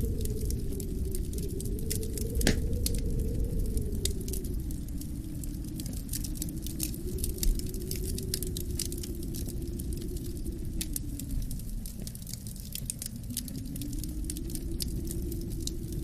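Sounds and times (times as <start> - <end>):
wind rushing: 0.0 - 12.0
wood fire crackling: 0.0 - 16.0.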